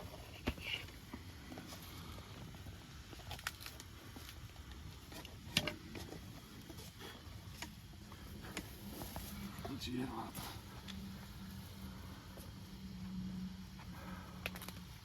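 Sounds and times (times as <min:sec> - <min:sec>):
low background noise: 0:00.0 - 0:15.0
faint clicks and crunches: 0:00.3 - 0:09.6, 0:14.0 - 0:15.0.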